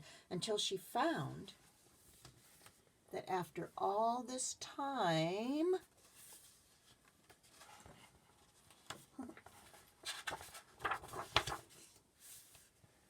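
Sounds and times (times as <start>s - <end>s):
book pages rustling: 1.9s - 2.8s, 5.9s - 12.8s.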